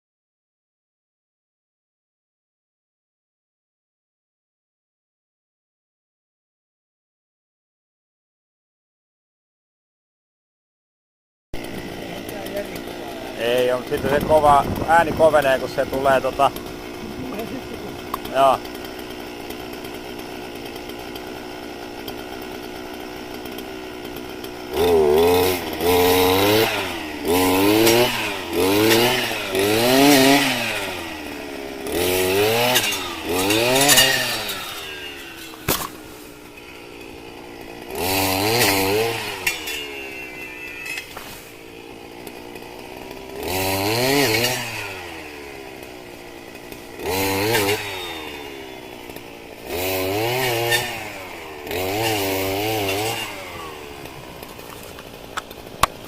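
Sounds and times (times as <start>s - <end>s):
chainsaw engine revving: 11.6s - 56.0s.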